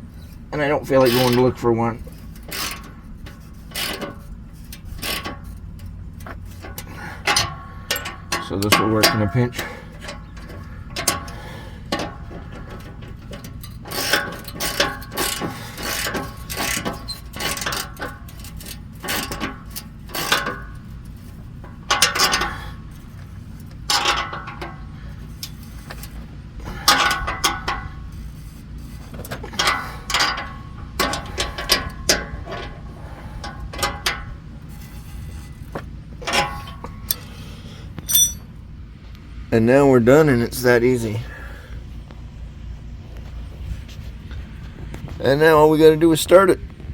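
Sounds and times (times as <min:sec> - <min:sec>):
ratchet clicking: 0:01.0 - 0:32.6
metal clinks: 0:01.0 - 0:38.6.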